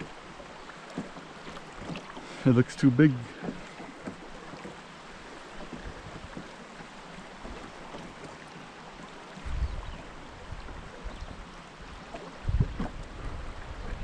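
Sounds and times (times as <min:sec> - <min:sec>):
river water hissing: 0:00.0 - 0:10.6.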